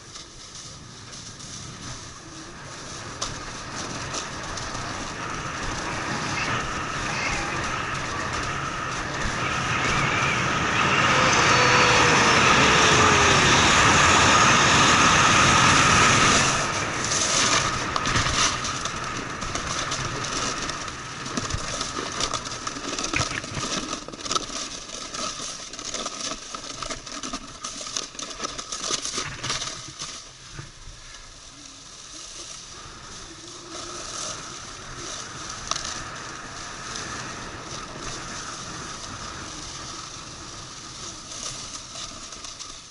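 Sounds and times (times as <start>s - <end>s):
snowboard edge scraping snow: 0.0s - 42.9s
wind on microphone: 0.7s - 23.7s.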